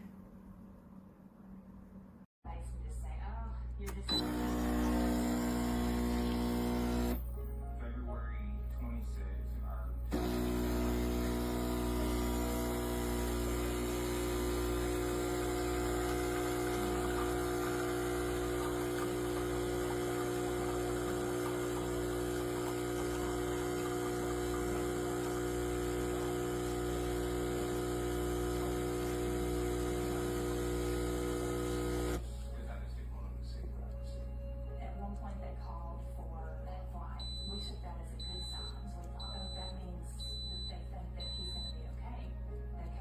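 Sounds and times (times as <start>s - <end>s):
espresso machine pump buzzing: 4.1s - 7.2s, 10.1s - 32.2s.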